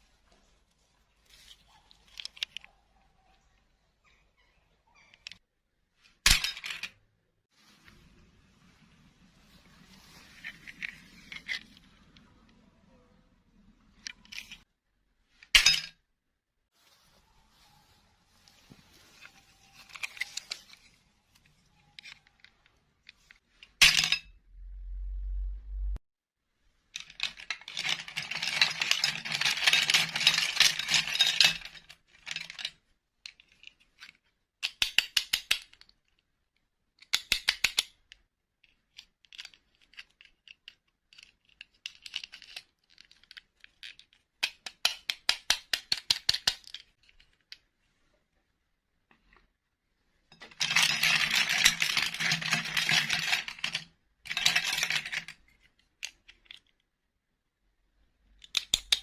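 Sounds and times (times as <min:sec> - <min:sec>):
plastic toys rattling and clicking: 0:01.3 - 0:02.8, 0:09.6 - 0:12.6, 0:13.9 - 0:14.7, 0:19.0 - 0:24.1, 0:26.8 - 0:47.7, 0:50.4 - 0:57.0
low hum: 0:24.3 - 0:26.0.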